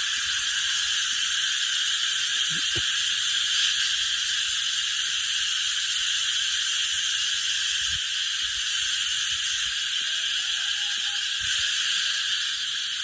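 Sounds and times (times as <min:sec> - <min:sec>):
cicadas shrilling: 0:00.0 - 0:13.0.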